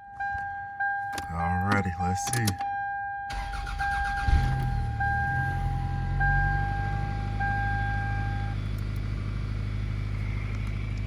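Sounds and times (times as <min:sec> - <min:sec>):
dashboard warning chime: 0:00.0 - 0:08.6
car engine starting and idling: 0:03.3 - 0:11.0.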